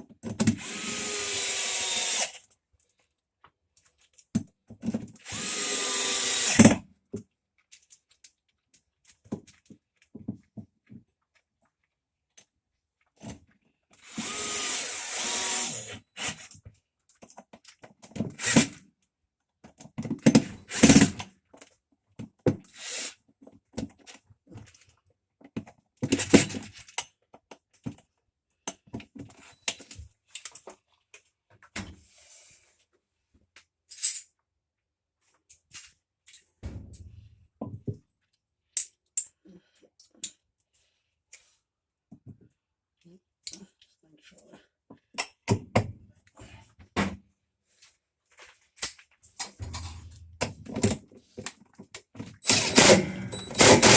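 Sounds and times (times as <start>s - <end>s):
power tool running: 0.6s - 2.4s, 5.2s - 6.7s, 14.1s - 16.0s, 52.4s - 53.9s
tools knocking on metal: 49.6s - 51.0s.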